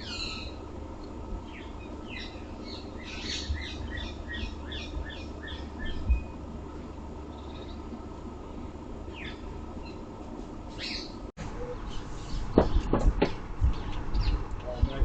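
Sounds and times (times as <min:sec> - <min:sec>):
bird chirping: 0:00.0 - 0:00.6, 0:01.4 - 0:06.4, 0:07.2 - 0:07.9, 0:13.6 - 0:14.8.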